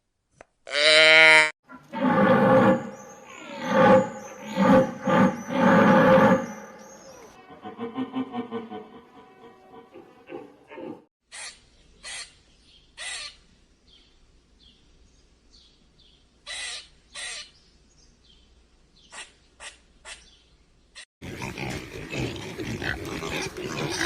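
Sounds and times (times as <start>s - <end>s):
bird harsh calls: 1.9s - 8.0s, 10.3s - 12.4s, 13.0s - 13.4s, 16.5s - 17.6s.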